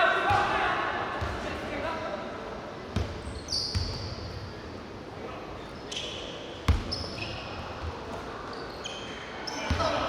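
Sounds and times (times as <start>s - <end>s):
indoor hall background noise: 0.0s - 10.0s
sneakers squeaking on court: 2.9s - 4.5s, 5.7s - 10.0s.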